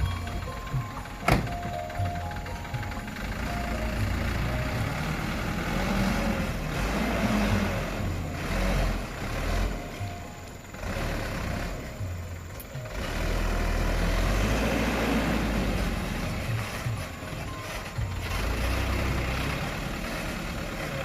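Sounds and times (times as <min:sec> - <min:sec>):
diesel truck engine running: 0:00.0 - 0:21.0.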